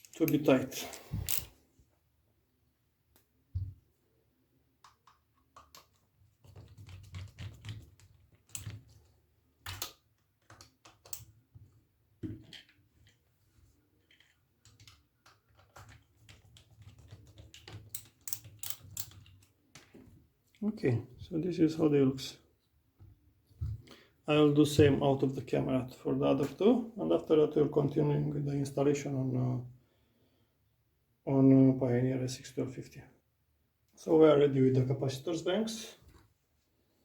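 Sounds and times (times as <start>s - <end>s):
hand tools clicking and tapping: 14.2s - 19.3s.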